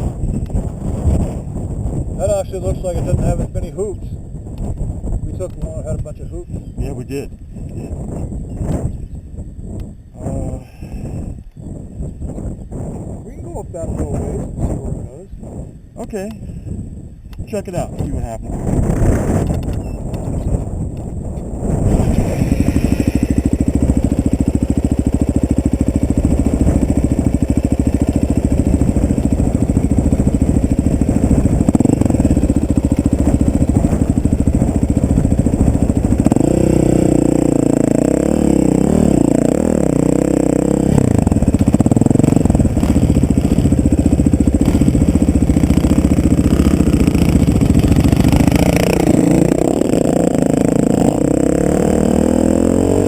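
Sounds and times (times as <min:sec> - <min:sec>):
off-road vehicle engine revving: 0:21.8 - 0:24.8, 0:26.2 - 0:53.0
vehicle rattling: 0:21.8 - 0:52.6.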